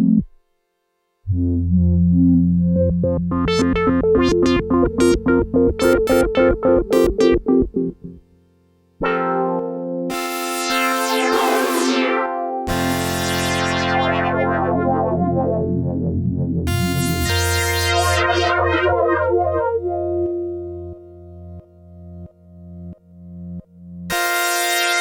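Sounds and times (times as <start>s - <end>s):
synthesizer chords: 1.2s - 8.4s, 9.0s - 25.0s
synthesizer falling sweep: 10.1s - 21.0s.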